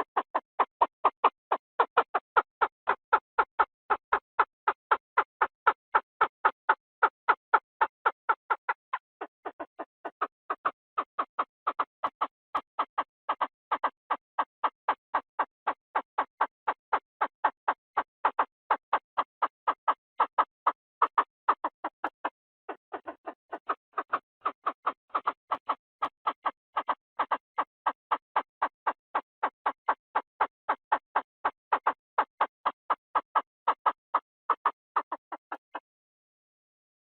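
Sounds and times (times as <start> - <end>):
bird calling in clipped notes: 8.4 - 13.9, 14.6 - 19.0, 19.6 - 28.7, 29.4 - 35.9.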